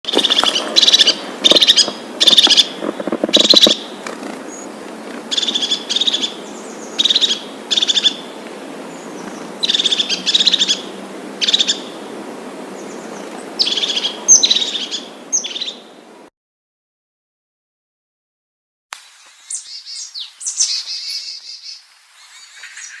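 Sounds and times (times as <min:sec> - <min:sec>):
small bird chirping: 0:00.1 - 0:08.3, 0:08.9 - 0:11.9, 0:12.8 - 0:15.8, 0:19.4 - 0:23.0
steady background hiss: 0:00.1 - 0:16.3, 0:19.0 - 0:23.0.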